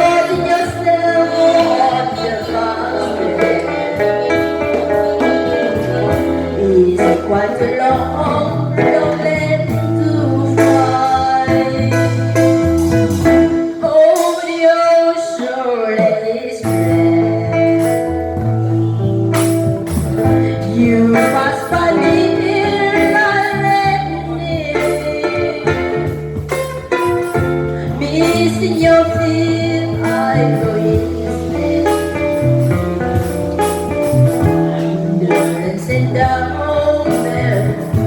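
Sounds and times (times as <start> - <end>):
guitar accompaniment: 0.0 - 38.0
saxophone playing a slow ballad: 17.4 - 21.1.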